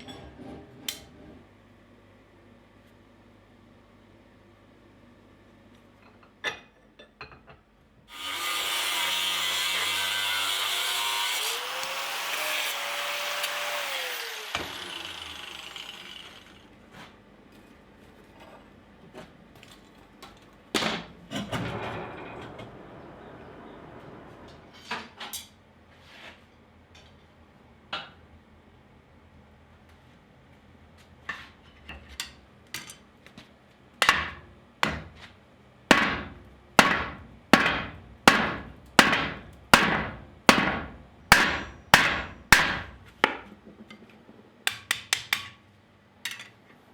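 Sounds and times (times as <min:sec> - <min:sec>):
electric power tool running: 0:08.1 - 0:16.7.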